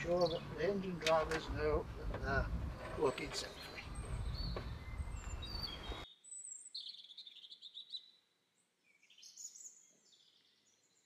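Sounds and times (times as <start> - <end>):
outdoor background hiss and rumble: 0.0 - 6.1
birds singing and chirping: 0.0 - 11.0.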